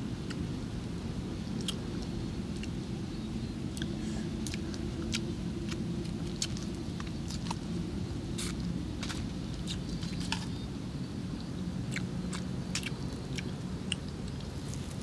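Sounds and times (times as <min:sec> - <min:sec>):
steady low hum: 0:00.0 - 0:15.0
person chewing: 0:01.6 - 0:01.8, 0:03.7 - 0:07.7, 0:11.9 - 0:15.0.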